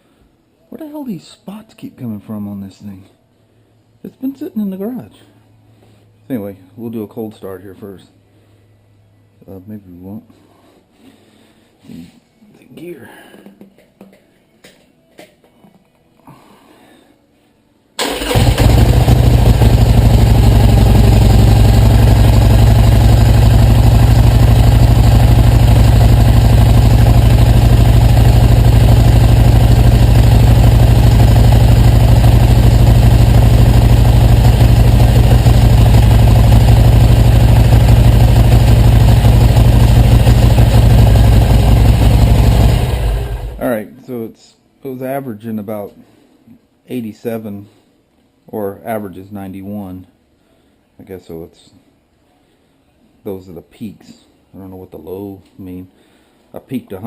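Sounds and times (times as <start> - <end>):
motorcycle engine starting and idling: 18.0 - 43.6.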